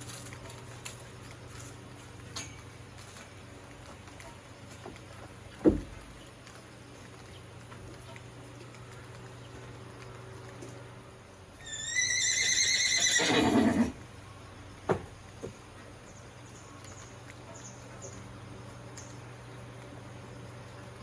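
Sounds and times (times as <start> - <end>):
horse neighing: 11.6 - 14.0.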